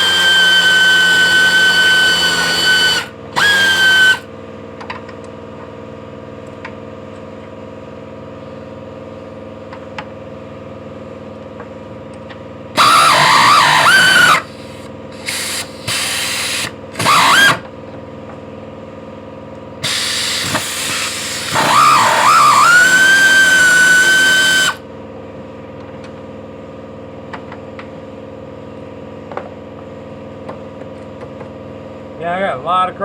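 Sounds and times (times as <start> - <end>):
power tool unbolting fasteners: 0.0 - 4.2, 12.8 - 14.6, 15.2 - 17.7, 19.8 - 24.8.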